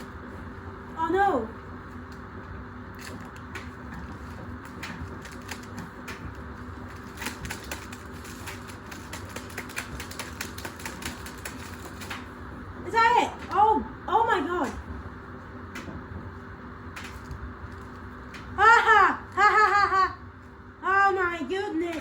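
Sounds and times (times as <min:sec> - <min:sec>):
washing machine motor hum: 0:00.0 - 0:22.0
objects rattling in washing machine: 0:02.9 - 0:13.7.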